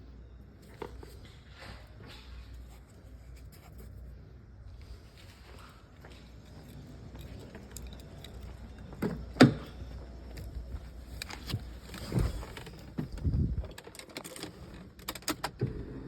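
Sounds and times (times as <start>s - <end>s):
keys jangling: 6.3s - 9.0s.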